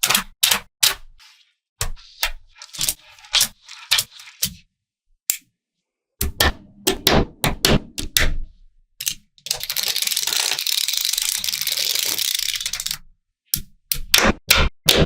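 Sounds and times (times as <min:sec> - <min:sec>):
magnetic balls clicking together: 0:09.0 - 0:13.0.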